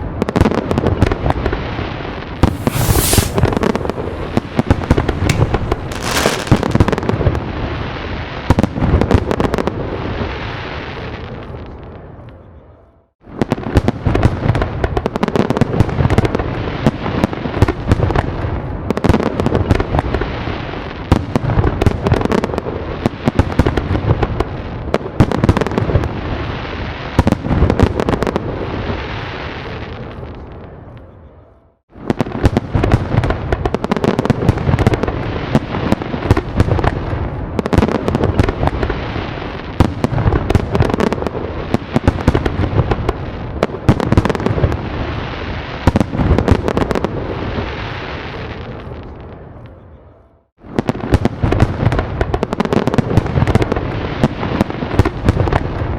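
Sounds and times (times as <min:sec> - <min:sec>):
fireworks bangs and crackles: 0:00.0 - 0:12.4, 0:13.2 - 0:31.0, 0:31.9 - 0:49.8, 0:50.6 - 0:55.9
deep fireworks booms: 0:02.4 - 0:10.4, 0:31.9 - 0:48.4, 0:50.6 - 0:55.9.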